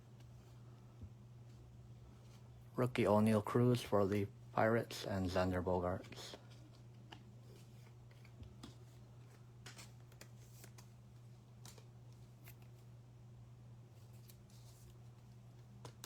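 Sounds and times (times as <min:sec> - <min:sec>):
steady low hum: 0:00.0 - 0:16.0
trading cards flicking and sliding: 0:06.1 - 0:12.8.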